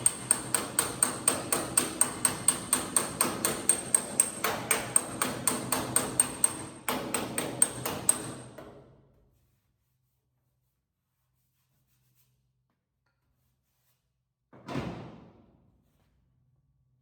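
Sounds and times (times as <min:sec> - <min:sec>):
hammer striking sheet metal: 0:00.0 - 0:08.7.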